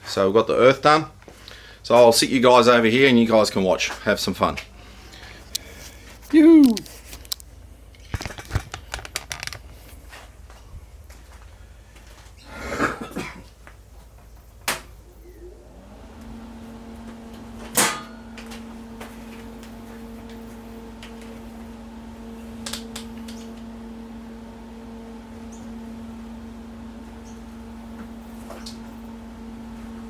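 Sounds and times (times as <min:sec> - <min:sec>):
tools knocking and clicking: 0:08.0 - 0:09.6
small electric motor humming: 0:15.1 - 0:29.9.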